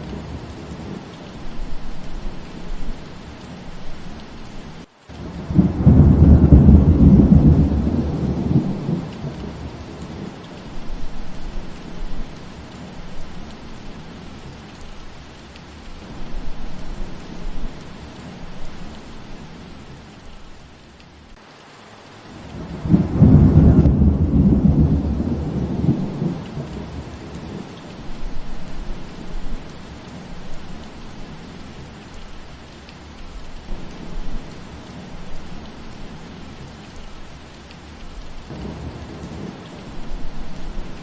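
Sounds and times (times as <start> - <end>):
steady rain falling: 0.0 - 41.0
thunder rumbling: 5.2 - 15.2, 22.5 - 32.4, 38.2 - 41.0.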